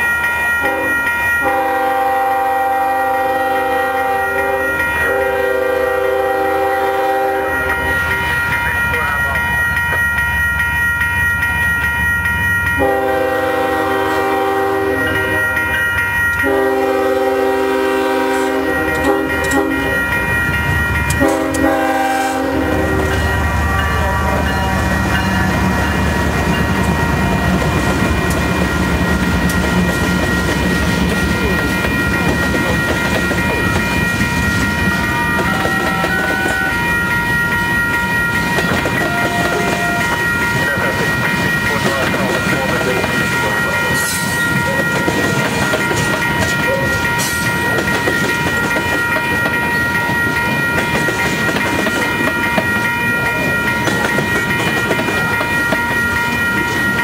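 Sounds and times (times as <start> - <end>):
freight train rolling past: 0.0 - 57.0
locomotive air horn blasts: 0.6 - 7.7, 12.8 - 15.6, 16.4 - 20.0, 21.2 - 24.9, 35.2 - 36.9, 39.0 - 40.2.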